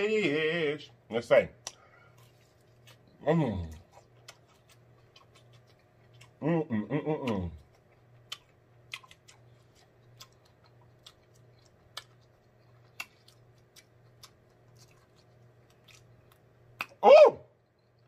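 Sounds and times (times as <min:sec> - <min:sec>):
faint steady hum: 0:00.0 - 0:18.0
mouth clicks and smacks chewing: 0:03.7 - 0:06.4, 0:07.2 - 0:17.0
person humming approval: 0:06.4 - 0:07.6.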